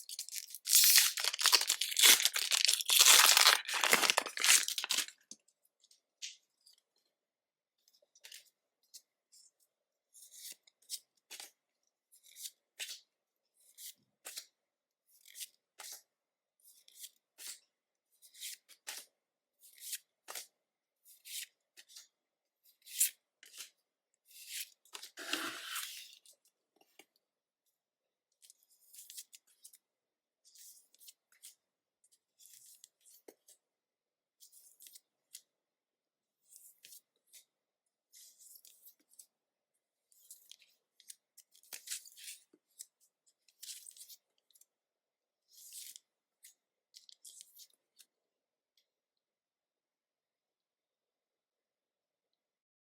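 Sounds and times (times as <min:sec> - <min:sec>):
foil pack crinkling: 0:00.1 - 0:05.3
cards sliding and flipping: 0:25.2 - 0:26.0.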